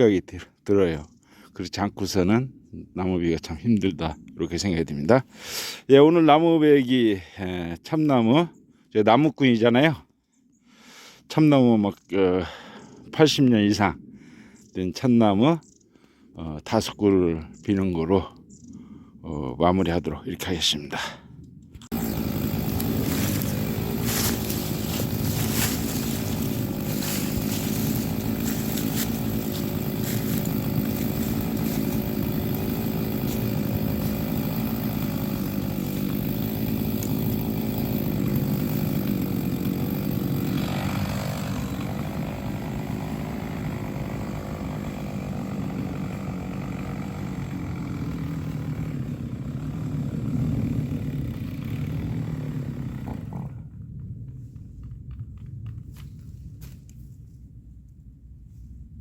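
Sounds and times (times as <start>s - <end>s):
chainsaw cutting wood: 21.9s - 55.2s
chainsaw engine running: 21.9s - 56.8s.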